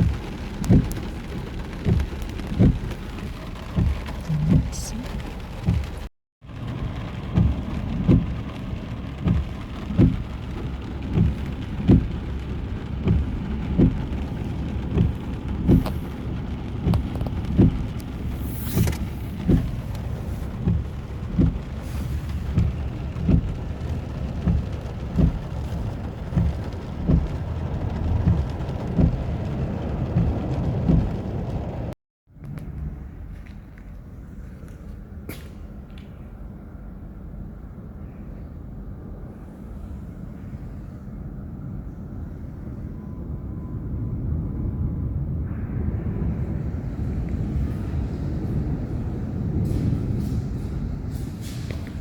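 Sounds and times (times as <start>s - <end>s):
steady rain: 0.0s - 32.6s, 43.8s - 52.0s.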